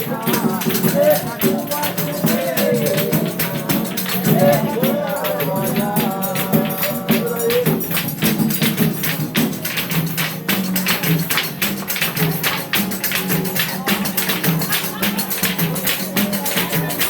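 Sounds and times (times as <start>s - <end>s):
person singing: 0.0s - 8.5s
fast pandeiro rhythm: 0.0s - 17.0s.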